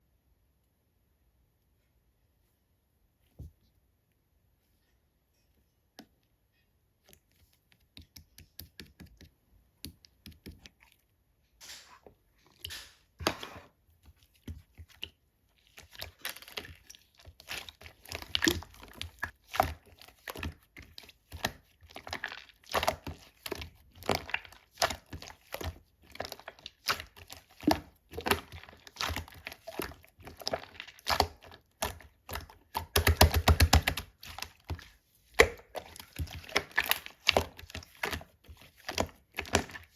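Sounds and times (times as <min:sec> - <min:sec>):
slime clicking and popping: 0:27.0 - 0:34.5.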